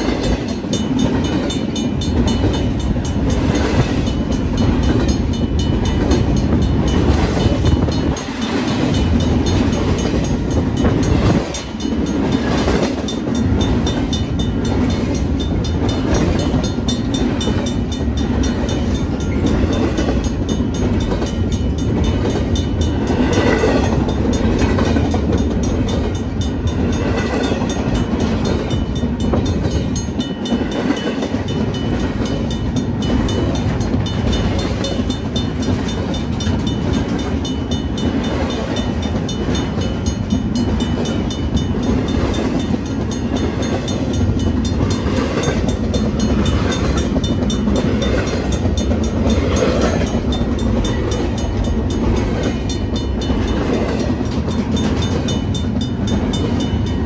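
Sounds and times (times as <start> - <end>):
crossing bell ringing: 0.0 - 57.0
freight train wheels rumbling: 0.0 - 57.0
rapid clicking of train trucks: 0.0 - 57.0.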